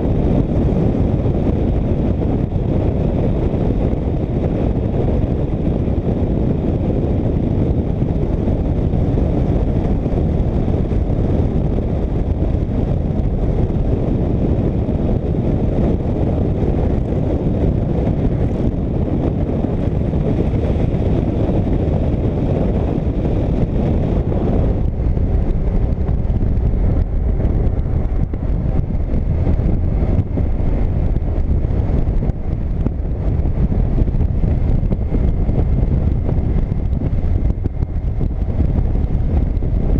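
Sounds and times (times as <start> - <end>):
motorcycle engine and road rumble: 0.0 - 39.9
wind rush over microphone: 0.0 - 39.9.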